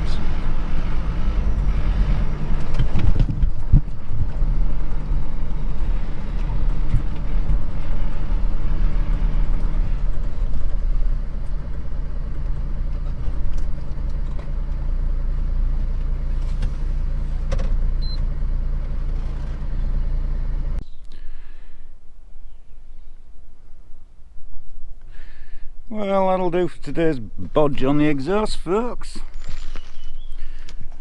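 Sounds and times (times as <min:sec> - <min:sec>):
truck engine running: 0:00.0 - 0:20.9.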